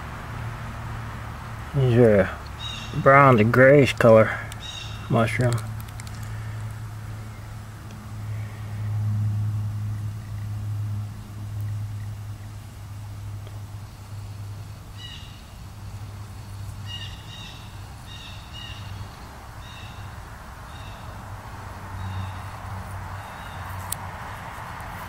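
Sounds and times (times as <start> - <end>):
steady low hum: 0.0 - 25.0
bird calling: 2.4 - 3.5, 4.2 - 6.7, 14.9 - 15.6, 16.8 - 21.2, 21.9 - 23.8.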